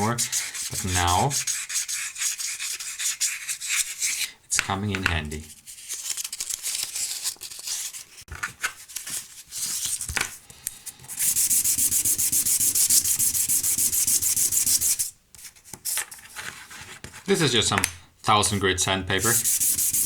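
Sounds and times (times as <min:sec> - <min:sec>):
hand sanding with sandpaper: 0:00.0 - 0:04.3, 0:11.1 - 0:15.1, 0:19.2 - 0:20.0.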